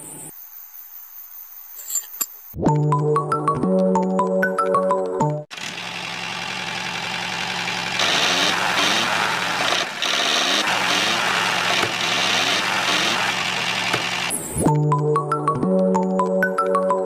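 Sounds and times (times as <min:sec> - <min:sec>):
small engine running: 0:05.5 - 0:14.6.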